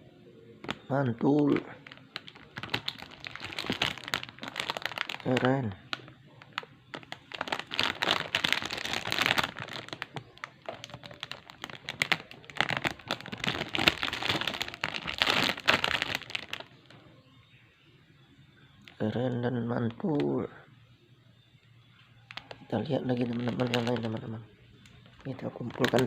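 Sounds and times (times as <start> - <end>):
plastic packaging crinkling: 0.6 - 17.0, 22.3 - 26.0.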